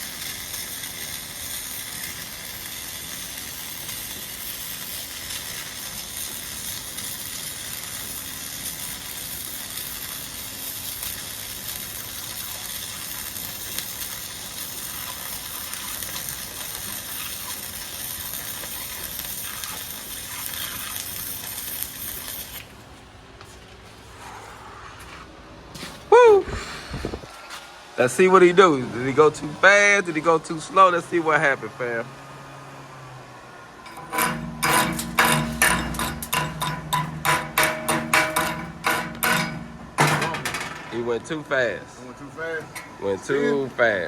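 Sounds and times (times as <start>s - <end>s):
welding arc sizzling: 0.0s - 22.8s, 33.8s - 44.0s.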